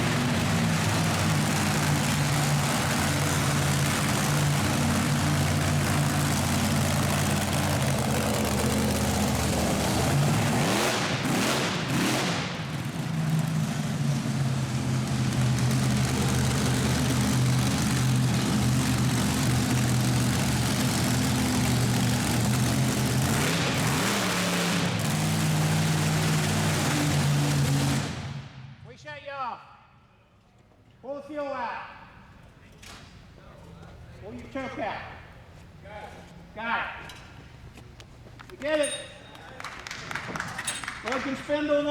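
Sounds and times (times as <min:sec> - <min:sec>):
truck engine revving: 0:00.0 - 0:28.7.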